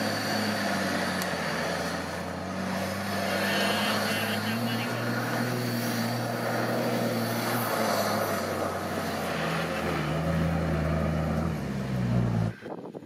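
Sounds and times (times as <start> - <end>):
off-road vehicle engine revving: 0.0 - 12.8
wind noise: 12.5 - 13.0.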